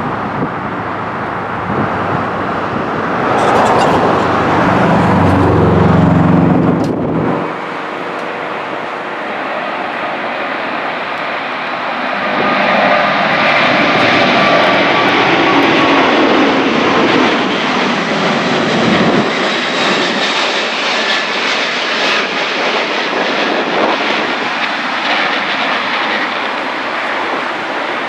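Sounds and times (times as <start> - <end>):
deep rumble: 0.0 - 8.0
jet engines roaring: 0.0 - 28.0.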